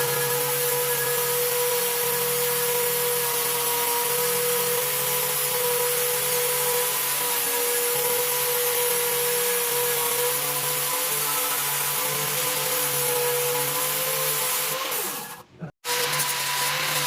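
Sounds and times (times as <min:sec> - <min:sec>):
power tool motor whine: 0:00.0 - 0:17.0.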